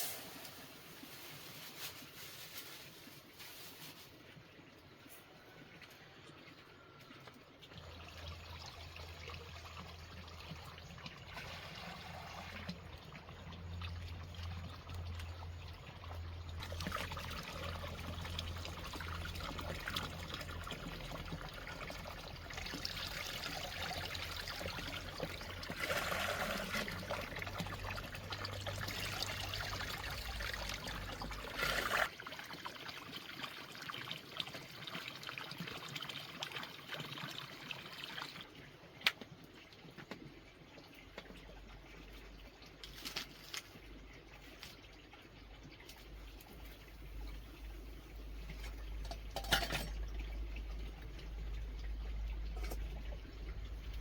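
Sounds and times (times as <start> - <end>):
water trickling: 4.7 - 54.0
low steady hum: 45.4 - 54.0.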